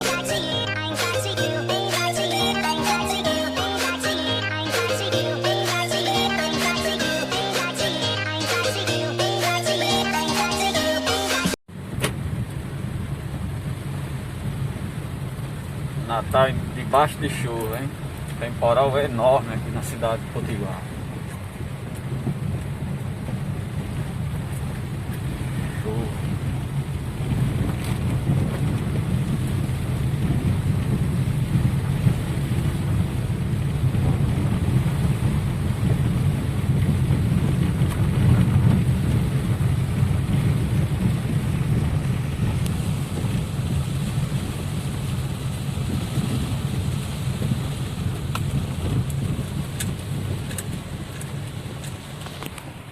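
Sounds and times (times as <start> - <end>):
heavy rain hissing: 0.0 - 11.5, 28.4 - 52.9
vehicle rumbling through water: 11.7 - 52.9.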